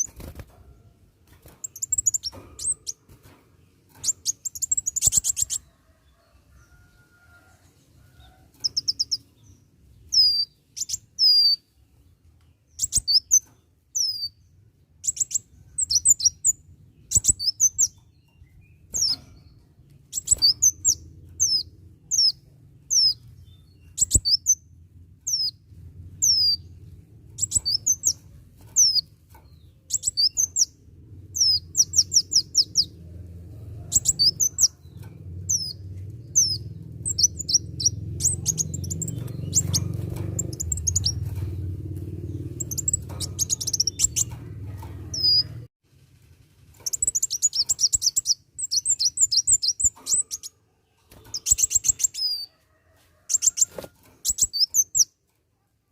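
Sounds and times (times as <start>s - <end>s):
faint low hum: 14.6s - 48.2s
sunbird chirping: 29.8s - 33.0s, 35.4s - 44.4s, 46.8s - 50.6s.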